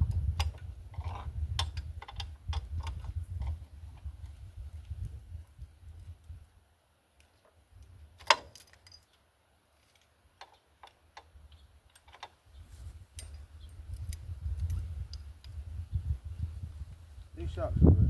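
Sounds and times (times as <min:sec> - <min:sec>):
metallic clicks of hand tools: 0:13.1 - 0:15.6.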